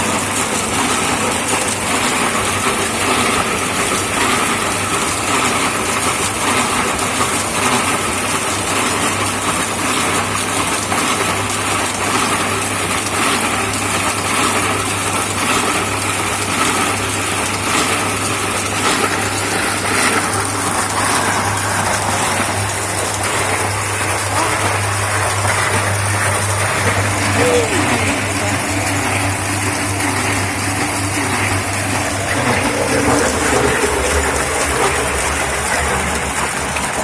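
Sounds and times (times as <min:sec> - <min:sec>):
concrete mixer rumbling: 0:00.0 - 0:37.0.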